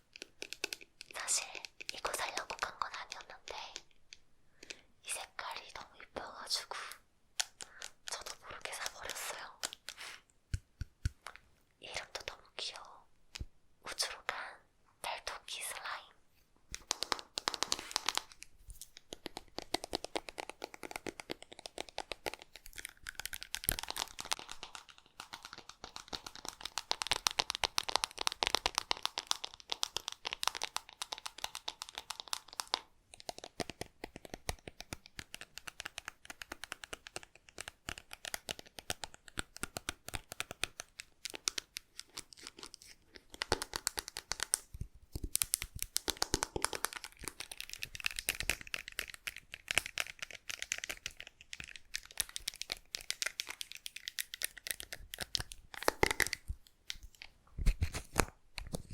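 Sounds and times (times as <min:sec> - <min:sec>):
slime crackling and popping: 0:16.8 - 0:58.9.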